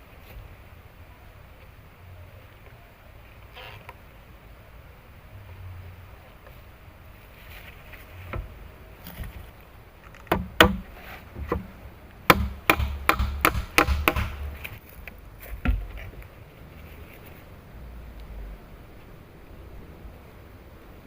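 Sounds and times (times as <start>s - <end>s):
blade chopping wood: 10.2s - 11.7s, 12.3s - 14.8s.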